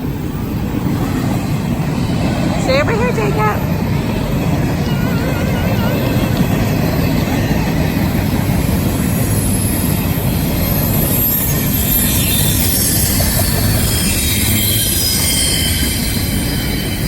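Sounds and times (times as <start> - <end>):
train wheels rumbling on rails: 0.0 - 17.0
high-pitched wheel squeal: 4.6 - 17.0.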